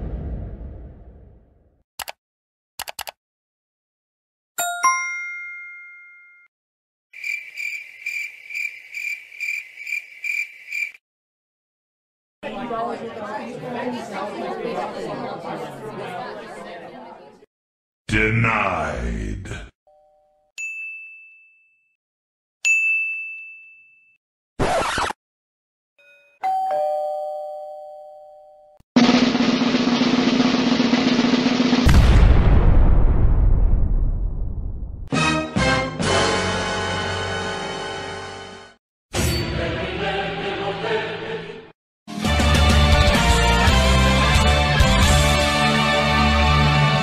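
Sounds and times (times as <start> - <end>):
two-note chime: 4.6 - 6.5
cricket chirping sound effect: 7.2 - 11.0
snare drum roll: 29.0 - 32.0.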